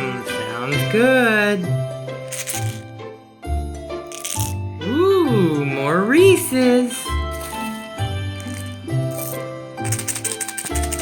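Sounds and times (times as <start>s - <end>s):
light background music with bass: 0.0s - 11.0s
shaker rattling: 2.3s - 2.8s, 4.1s - 4.6s, 7.3s - 11.0s.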